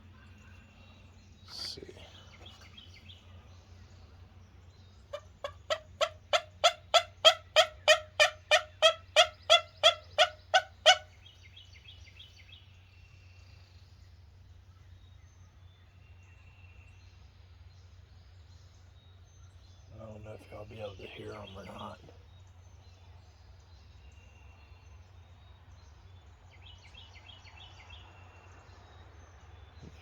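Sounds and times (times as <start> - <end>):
turkey call yelps: 5.1 - 11.2
faint small-bird chirps: 29.6 - 30.0.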